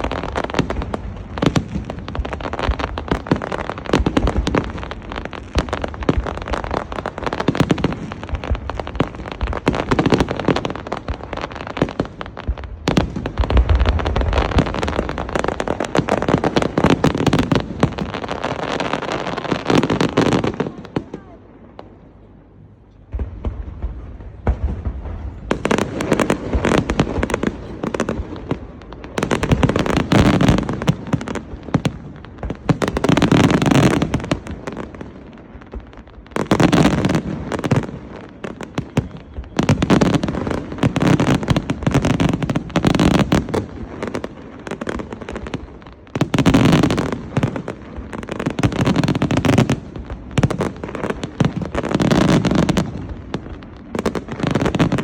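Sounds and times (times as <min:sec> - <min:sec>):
fireworks bursting and crackling: 0:00.0 - 0:55.0.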